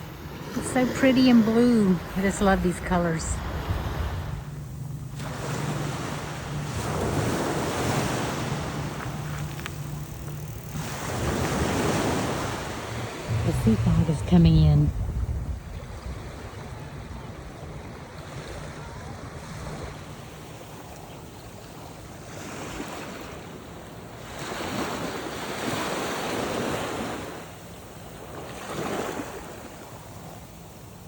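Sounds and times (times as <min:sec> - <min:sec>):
waves breaking on beach: 0:00.0 - 0:31.0
wind rumble on microphone: 0:01.5 - 0:20.8.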